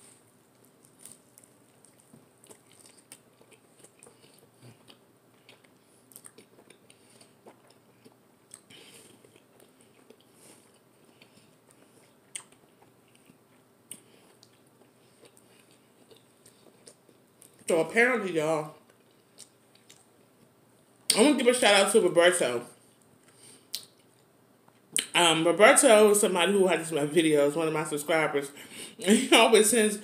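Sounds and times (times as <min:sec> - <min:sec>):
close-up chewing: 0:00.5 - 0:17.7, 0:18.8 - 0:20.5.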